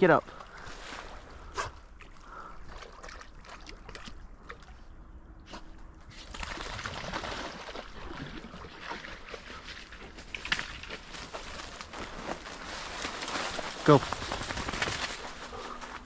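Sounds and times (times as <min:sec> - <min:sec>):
dog lapping water: 0:01.5 - 0:04.9, 0:06.2 - 0:11.1.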